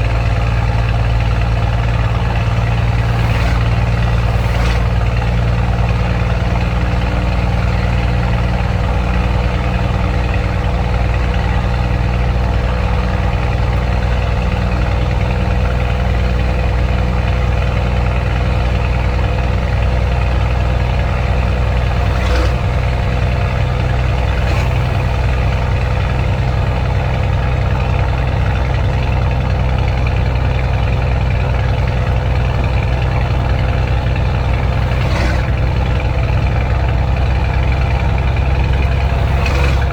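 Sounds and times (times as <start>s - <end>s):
diesel truck engine droning: 0.0s - 39.9s.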